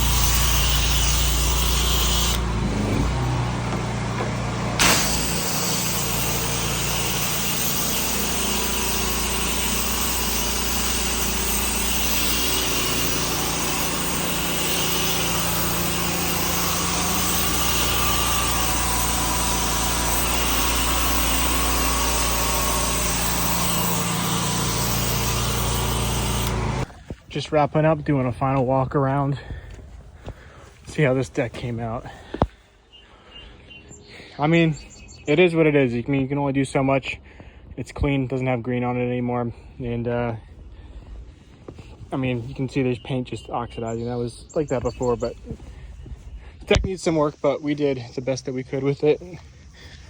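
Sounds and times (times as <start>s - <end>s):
pressure washer engine drone: 0.0s - 26.9s.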